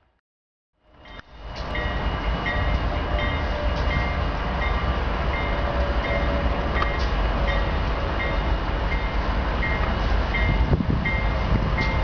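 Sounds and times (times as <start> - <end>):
train rumbling: 0.8 - 12.0.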